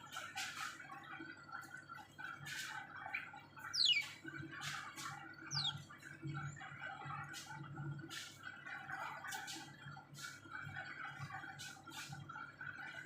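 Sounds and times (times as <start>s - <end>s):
bird chirping harshly: 3.6s - 4.2s, 5.4s - 5.8s.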